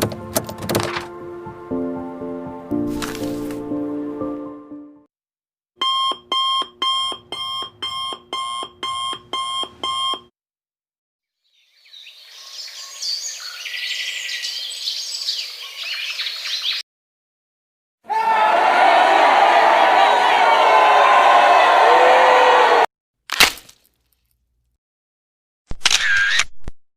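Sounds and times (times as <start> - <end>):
digital alarm clock beeping: 5.8 - 10.3
birds chirping: 11.4 - 16.8.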